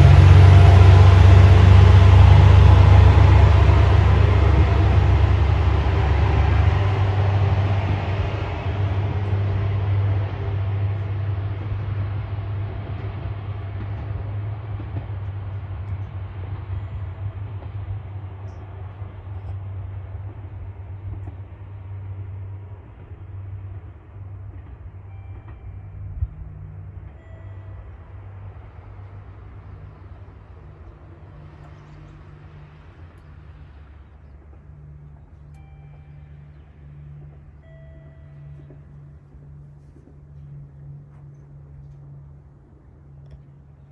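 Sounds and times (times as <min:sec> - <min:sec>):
diesel railcar engine hum: 0:00.0 - 0:43.9
rail rumble: 0:00.0 - 0:43.9.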